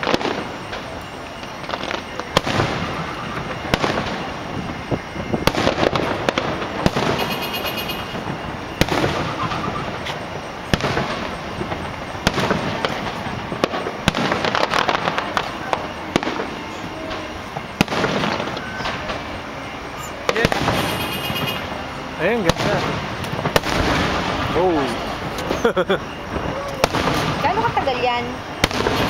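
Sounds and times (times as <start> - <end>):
continuous noisy wash: 0.0 - 29.0
fireworks shells booming: 0.0 - 29.0.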